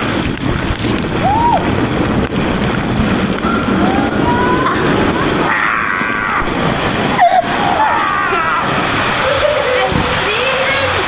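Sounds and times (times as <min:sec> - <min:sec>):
rushing sloshing water: 0:00.0 - 0:11.0
high voices calling out: 0:03.4 - 0:11.0.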